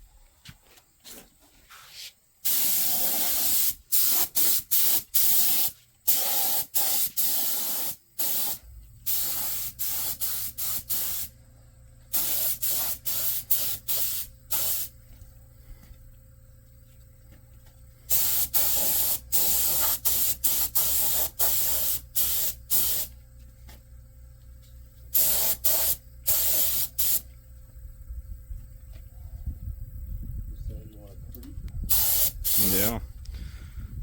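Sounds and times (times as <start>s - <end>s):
spray paint can hissing: 2.4s - 11.3s, 12.1s - 14.9s, 18.1s - 23.1s, 25.1s - 27.3s, 31.9s - 32.8s.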